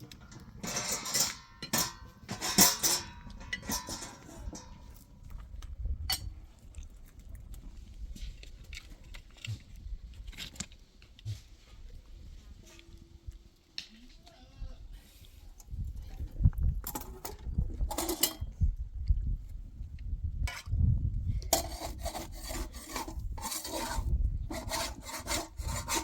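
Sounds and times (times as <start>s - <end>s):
metal dishes clinking: 0.2s - 4.9s, 17.9s - 18.4s.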